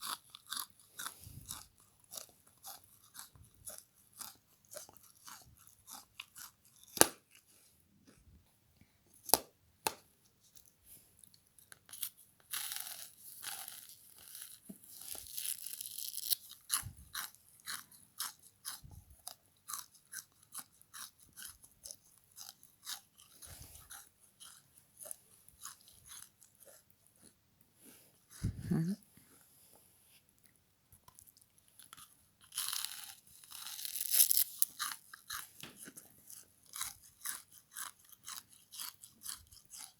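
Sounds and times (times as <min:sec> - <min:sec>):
crunchy chewing of frozen sponge: 0:00.0 - 0:08.3, 0:09.2 - 0:29.5, 0:30.2 - 0:39.9.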